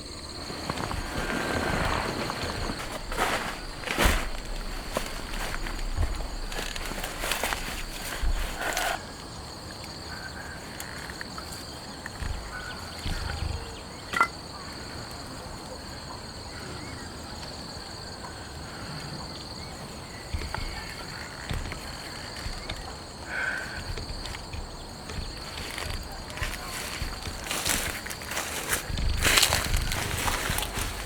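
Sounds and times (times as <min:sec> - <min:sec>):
soft low thumps: 0:00.0 - 0:09.0, 0:12.1 - 0:13.9, 0:20.1 - 0:31.0
insects chirring: 0:00.0 - 0:31.0.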